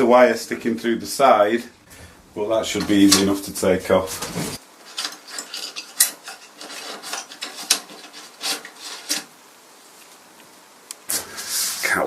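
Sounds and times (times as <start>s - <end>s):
hand tool scraping wood finish: 2.7s - 9.4s.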